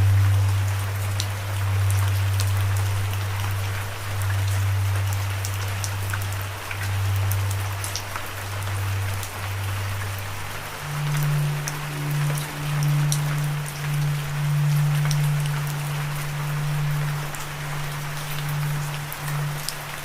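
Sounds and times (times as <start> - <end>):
low humming drone: 0.0 - 20.0
steady rain: 0.0 - 20.0.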